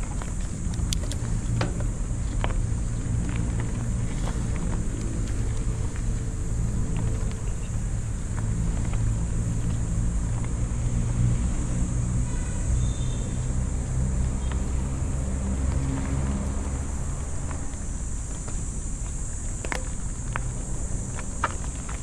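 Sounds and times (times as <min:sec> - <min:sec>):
vehicle engine running: 0:00.0 - 0:12.2.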